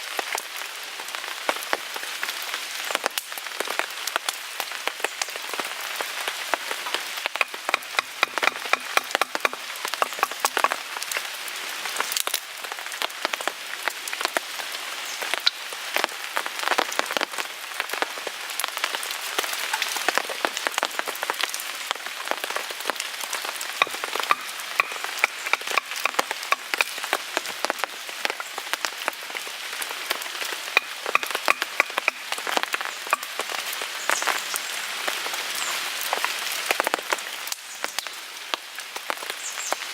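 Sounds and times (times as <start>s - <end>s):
rain pattering on a tarp: 0.0s - 8.2s, 9.0s - 39.9s
wood fire crackling and popping: 7.2s - 11.3s, 22.4s - 29.2s, 29.8s - 33.8s.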